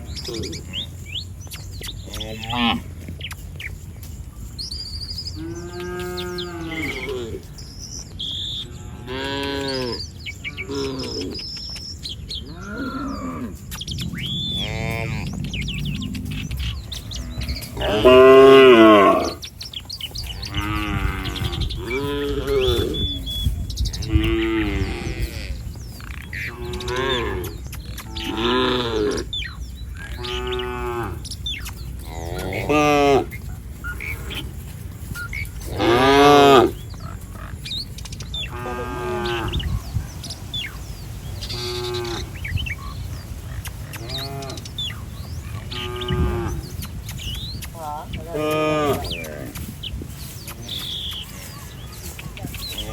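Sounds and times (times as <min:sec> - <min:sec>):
cattle mooing: 0:02.0 - 0:02.8, 0:05.4 - 0:07.5, 0:08.6 - 0:11.4, 0:12.4 - 0:19.4, 0:20.2 - 0:23.2, 0:24.0 - 0:29.3, 0:30.0 - 0:31.2, 0:32.0 - 0:34.6, 0:35.2 - 0:37.6, 0:38.4 - 0:39.8, 0:41.4 - 0:46.8, 0:48.3 - 0:49.6.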